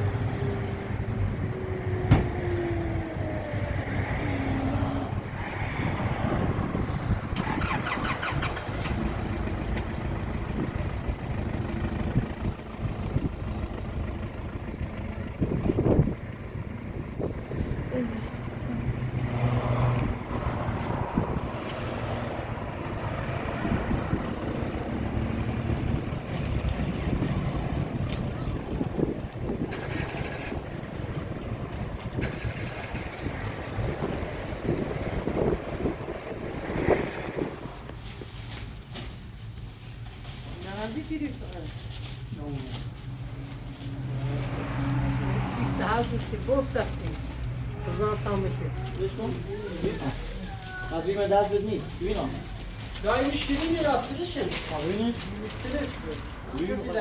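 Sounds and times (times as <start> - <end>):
engine hum: 0.0 - 57.0
voices: 7.4 - 21.0, 22.6 - 31.4, 40.6 - 57.0.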